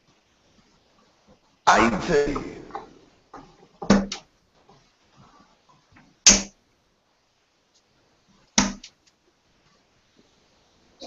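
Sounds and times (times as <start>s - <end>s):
darts striking dartboard: 6.3s - 6.5s, 8.6s - 8.9s.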